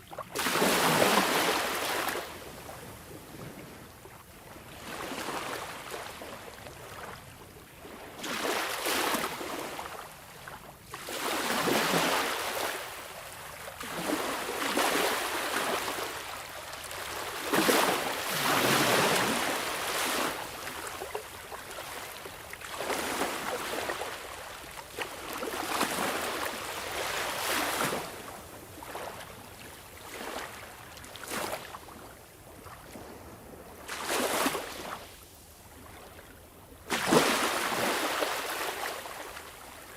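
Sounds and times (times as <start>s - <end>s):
sea waves breaking: 13.8s - 29.4s, 36.9s - 39.9s.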